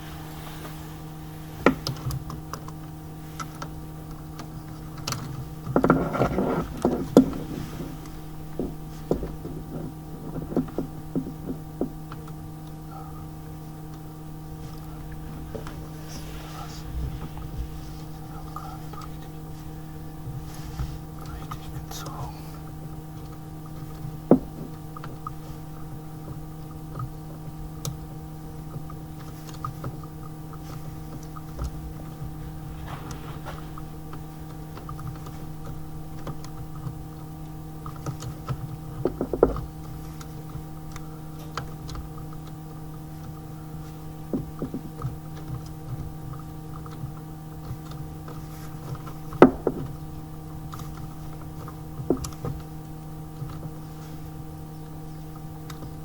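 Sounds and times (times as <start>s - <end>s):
low electrical hum: 0.0s - 56.0s
sharp knocks and clicks: 3.4s - 12.4s, 37.8s - 42.6s, 47.6s - 50.1s, 50.7s - 52.7s.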